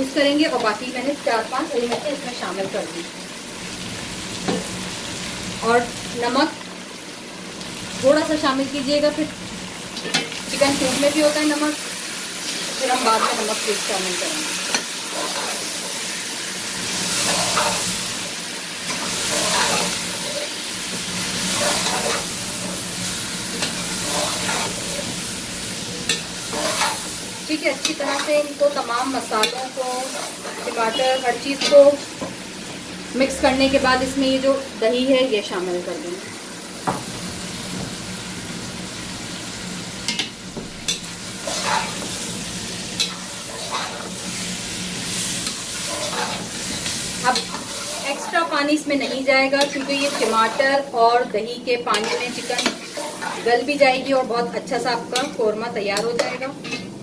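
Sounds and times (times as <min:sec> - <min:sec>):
food sizzling in hot oil: 0:00.0 - 0:57.0
metal spoon stirring: 0:18.9 - 0:20.5, 0:40.9 - 0:42.1, 0:45.3 - 0:50.8.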